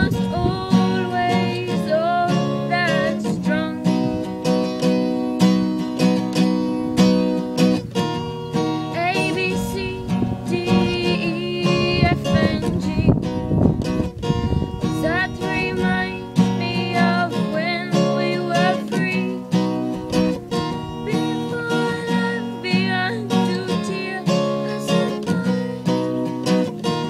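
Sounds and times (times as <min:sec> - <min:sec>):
person singing: 0:00.0 - 0:04.2, 0:08.9 - 0:13.2, 0:15.0 - 0:19.5, 0:21.0 - 0:26.1
acoustic guitar strumming: 0:00.0 - 0:27.0.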